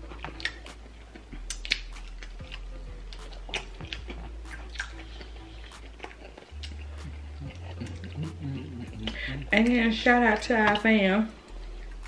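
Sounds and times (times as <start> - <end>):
wet chewing: 0.0 - 10.9
lip smacks and mouth clicks: 0.1 - 9.2.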